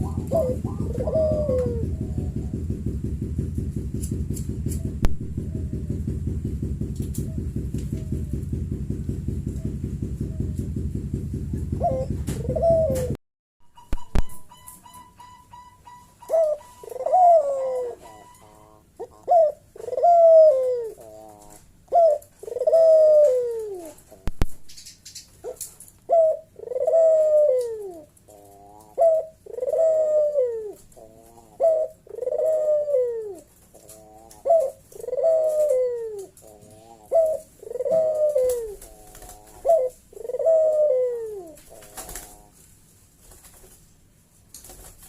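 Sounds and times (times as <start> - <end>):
dove cooing call: 0.0 - 3.0, 4.0 - 6.3, 11.7 - 13.2, 14.0 - 24.3, 25.4 - 42.7.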